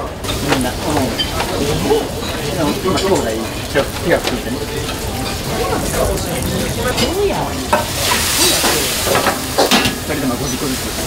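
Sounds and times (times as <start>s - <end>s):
food sizzling on a griddle: 0.1s - 11.0s
metal utensils clinking and scraping: 0.2s - 10.0s
loud hiss: 3.5s - 11.0s.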